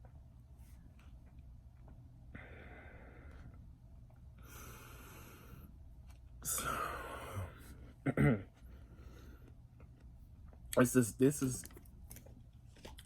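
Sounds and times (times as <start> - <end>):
person breathing out heavily: 2.3 - 3.5, 4.4 - 5.7, 6.4 - 7.9.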